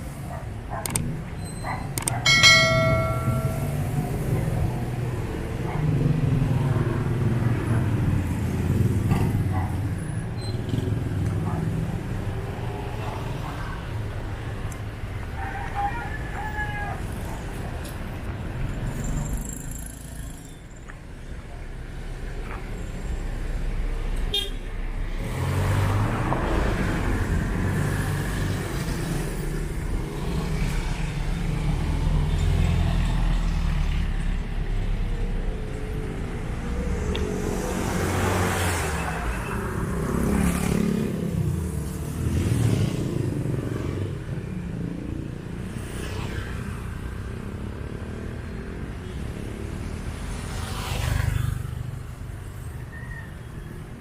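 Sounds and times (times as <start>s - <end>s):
cars and motorcycles passing: 0.0s - 54.0s
vehicle horn tooting: 24.3s - 24.7s.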